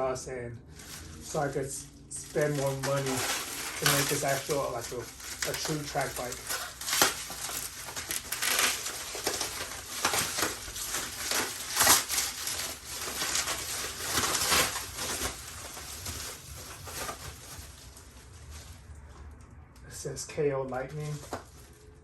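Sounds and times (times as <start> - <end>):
packaging crinkling and rustling: 0.7 - 19.4, 20.7 - 22.0.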